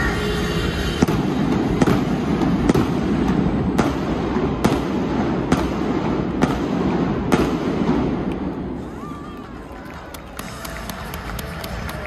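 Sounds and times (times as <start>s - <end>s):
fireworks bangs: 0.8s - 9.1s.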